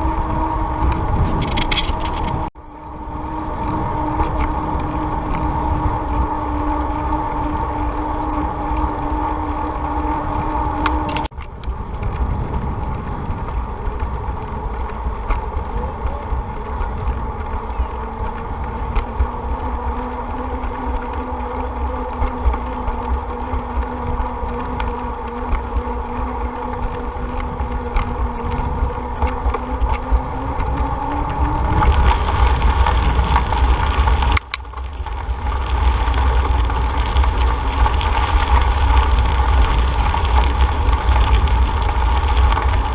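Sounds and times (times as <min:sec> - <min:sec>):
bicycle road noise: 0:00.0 - 0:42.9
steady drifting hum: 0:00.0 - 0:42.9
wind rumbling on microphone: 0:00.0 - 0:42.9.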